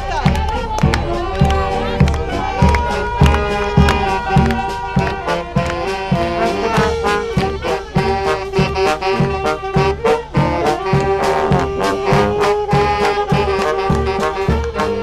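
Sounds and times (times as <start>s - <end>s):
brass band music: 0.0s - 15.0s.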